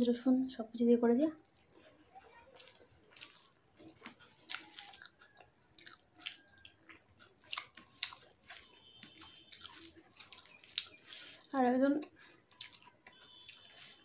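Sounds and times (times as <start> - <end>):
fingers mixing rice on steel plate: 1.4 - 14.0
person chewing food: 1.4 - 14.0
wet mouth smacks and clicks: 5.8 - 11.2.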